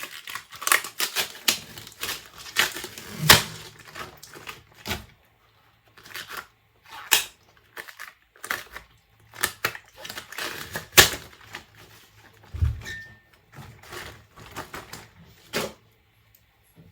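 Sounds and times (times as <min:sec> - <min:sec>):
dull thump: 0:12.6 - 0:13.2.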